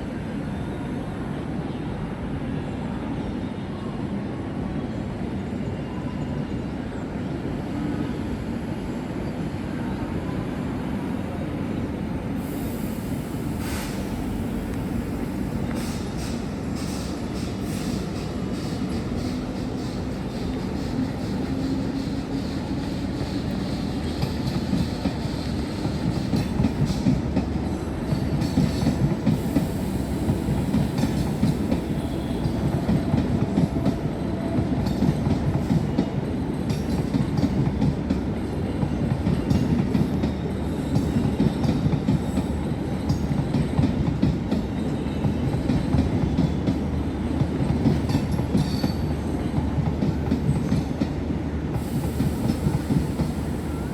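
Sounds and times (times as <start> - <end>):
train rumbling on tracks: 0.0 - 53.9.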